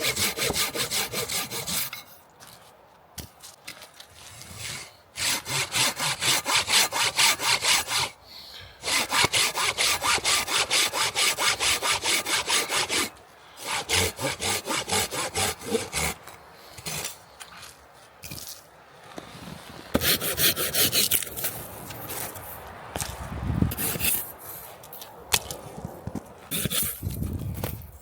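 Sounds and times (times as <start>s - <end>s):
hand saw cutting wood: 0.0s - 2.0s, 4.2s - 8.2s, 8.8s - 17.2s, 19.9s - 21.5s, 23.7s - 24.3s, 26.5s - 27.1s.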